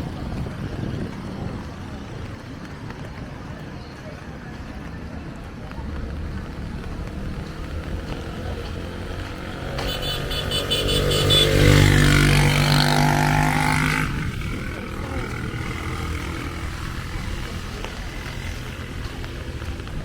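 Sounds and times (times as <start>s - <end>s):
street background noise: 0.0s - 20.0s
vehicle engine passing by: 5.2s - 20.0s.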